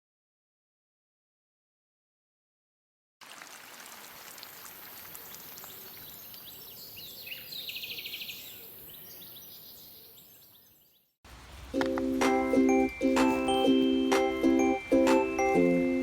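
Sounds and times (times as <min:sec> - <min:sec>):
steady outdoor hush: 0:03.4 - 0:10.2, 0:11.3 - 0:16.0
bird singing high trill: 0:05.3 - 0:11.1.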